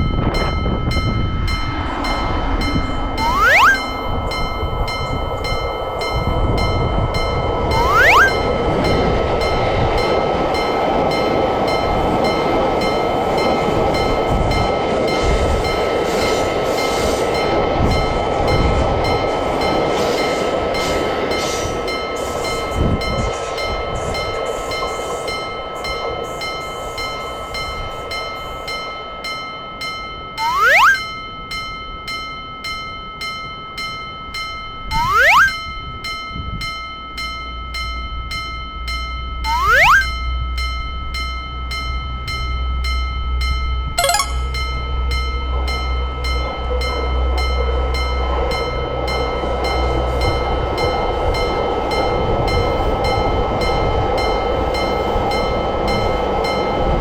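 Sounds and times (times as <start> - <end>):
rising whistle-like glide: 3.1 - 4.6, 7.7 - 8.7, 30.4 - 31.2, 34.9 - 35.6, 39.5 - 40.2.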